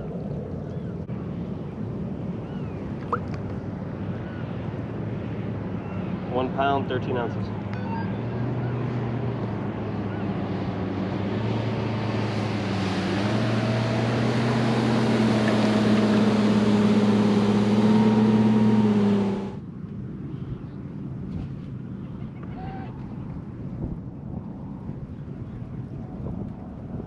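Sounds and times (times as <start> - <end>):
rushing wind: 0.0 - 27.0
boat motor humming: 7.6 - 19.6
rushing water: 12.1 - 19.4.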